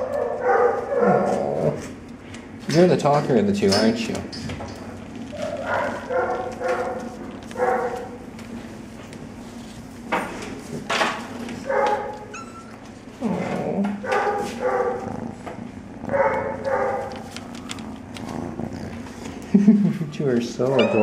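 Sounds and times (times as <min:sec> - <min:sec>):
cat purring: 0:13.2 - 0:19.7.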